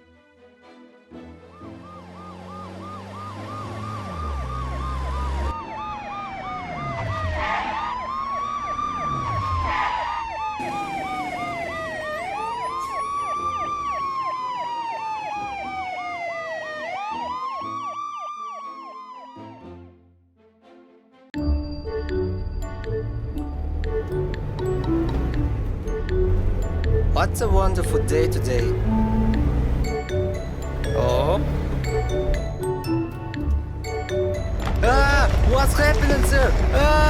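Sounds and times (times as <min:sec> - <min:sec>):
siren wailing: 0:01.4 - 0:19.8
siren yelping: 0:01.5 - 0:19.8.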